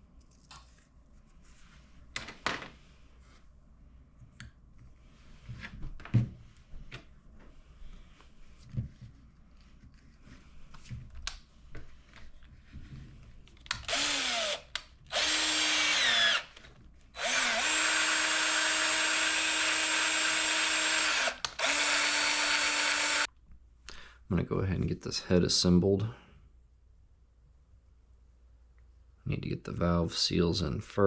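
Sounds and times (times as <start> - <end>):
electric drill motor spinning: 13.7 - 16.6, 17.2 - 23.3.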